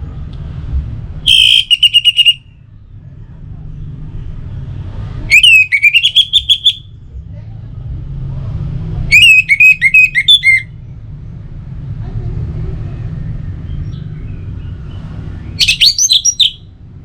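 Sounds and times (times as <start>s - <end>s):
thrush singing whistled notes: 1.3s - 2.6s, 5.3s - 6.9s, 9.1s - 10.7s, 15.4s - 16.7s.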